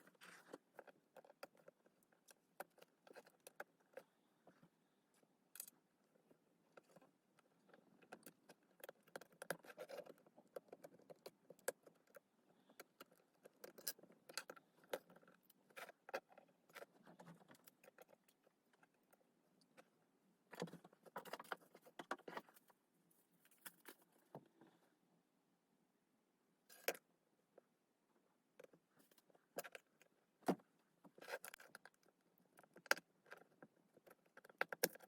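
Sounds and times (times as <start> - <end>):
small tools clicking and scraping: 7.6 - 19.9.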